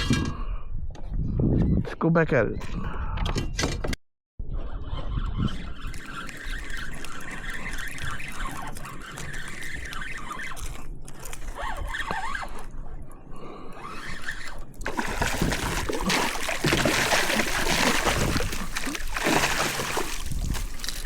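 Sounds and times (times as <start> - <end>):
water trickling and lapping: 5.5 - 12.7, 13.8 - 21.0
water splashing: 14.8 - 21.0.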